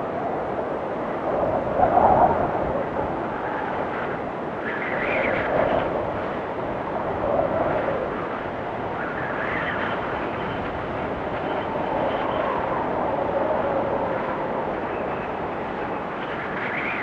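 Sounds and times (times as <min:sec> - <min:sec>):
whistling blizzard wind: 0:00.0 - 0:17.0.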